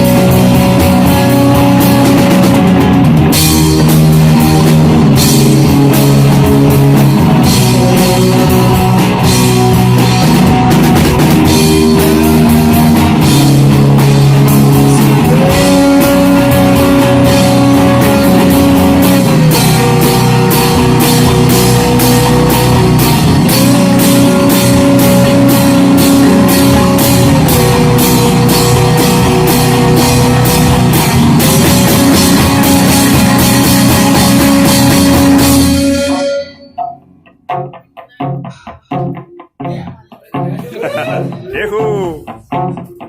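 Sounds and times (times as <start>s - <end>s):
rock band playing live: 0.0s - 43.0s
sparse guitar notes: 0.0s - 43.0s.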